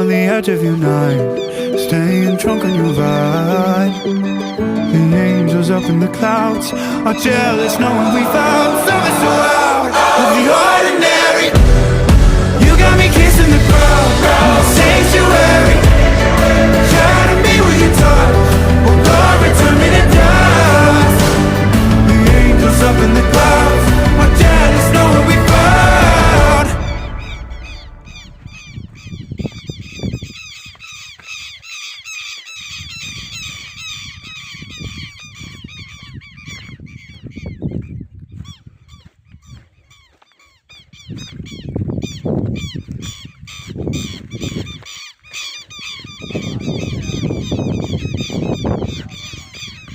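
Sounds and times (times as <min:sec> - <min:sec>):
chorus of birds chirping: 0:00.0 - 0:11.6, 0:12.6 - 0:49.9
low rumbling: 0:11.5 - 0:29.1.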